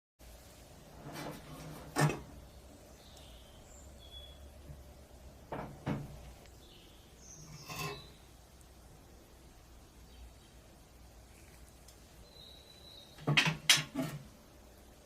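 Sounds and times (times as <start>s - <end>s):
hard objects knocking: 13.2s - 14.2s.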